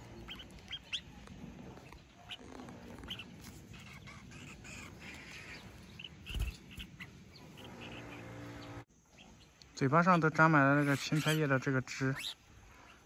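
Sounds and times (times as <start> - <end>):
small ticks and rustles: 0.0 - 7.1.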